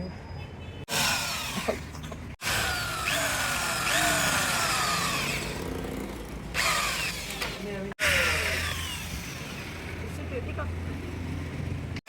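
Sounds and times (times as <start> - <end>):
power drill running on plastic: 0.9 - 5.6, 6.5 - 10.1.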